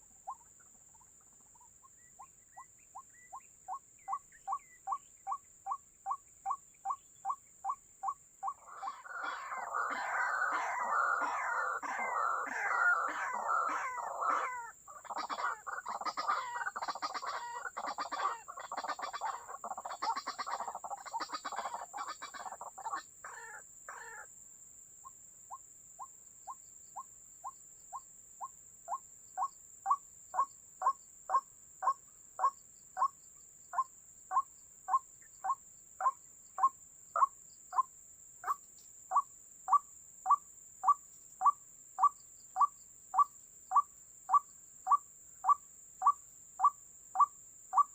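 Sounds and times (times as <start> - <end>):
waterhen calling: 7.2 - 24.2.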